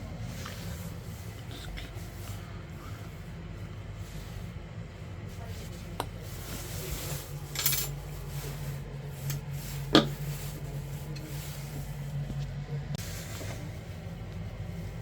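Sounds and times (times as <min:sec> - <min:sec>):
steady low hum: 0:00.0 - 0:15.0
metal tools clattering: 0:07.4 - 0:08.0.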